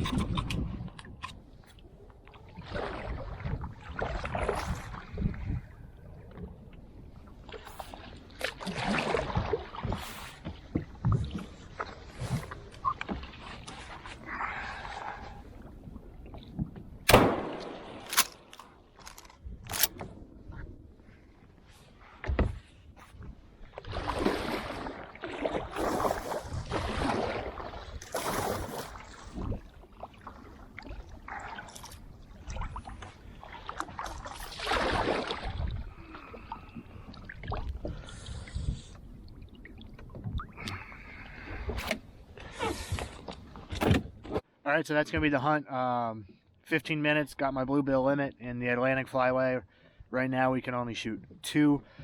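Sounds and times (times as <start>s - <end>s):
paddle splashing in water: 0.0s - 44.4s.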